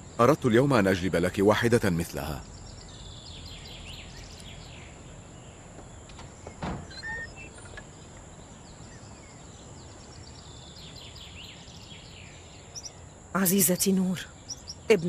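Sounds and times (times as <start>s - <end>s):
small birds chirping: 0.0s - 15.0s
steady outdoor hiss: 0.0s - 15.0s
short thump: 5.8s - 7.0s.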